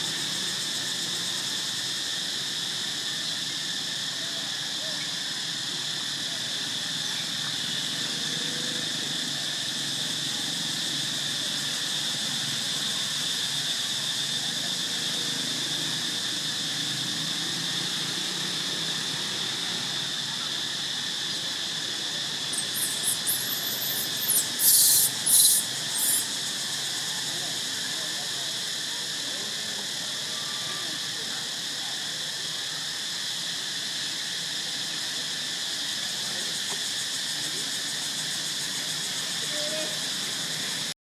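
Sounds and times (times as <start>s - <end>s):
insect chorus droning: 0.0s - 41.0s
young monkey squealing: 22.5s - 26.4s.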